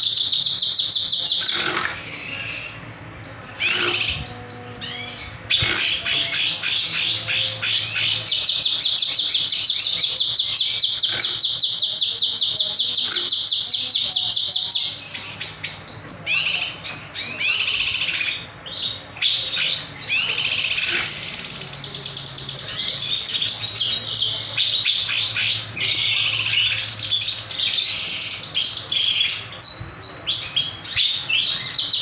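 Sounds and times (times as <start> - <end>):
songbird chattering and trilling: 0.0 - 32.0.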